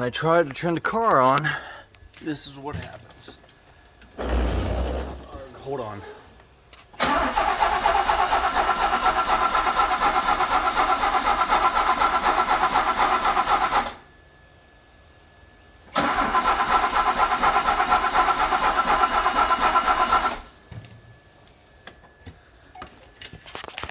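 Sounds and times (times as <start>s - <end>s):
engine starter cranking: 7.0s - 14.0s, 15.9s - 20.6s.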